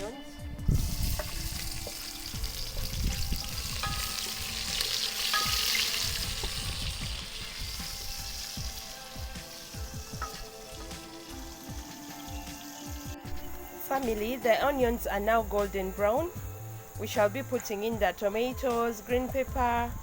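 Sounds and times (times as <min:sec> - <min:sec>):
onions sizzling in a pan: 0:00.7 - 0:14.7.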